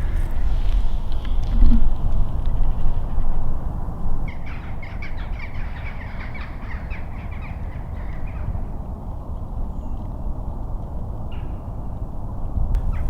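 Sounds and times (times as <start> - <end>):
steady low rumble: 0.0 - 4.2, 12.6 - 13.0.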